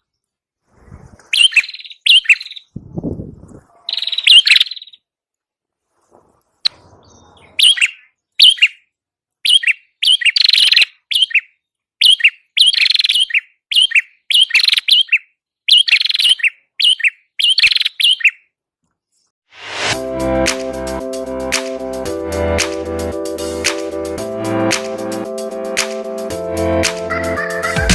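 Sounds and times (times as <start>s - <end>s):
bird sharp chirps and trills: 1.3s - 3.1s, 3.9s - 5.1s, 6.7s - 18.5s.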